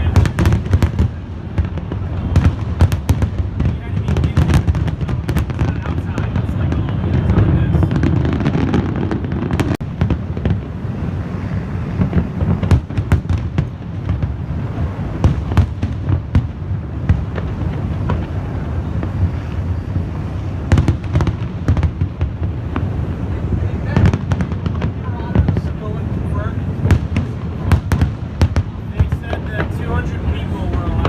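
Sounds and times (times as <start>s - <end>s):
continuous low rumble: 0.0s - 31.0s
fireworks bangs and crackles: 0.0s - 31.0s.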